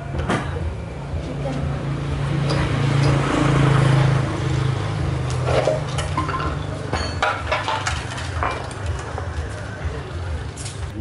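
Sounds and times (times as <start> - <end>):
car engine revving: 0.7 - 6.8.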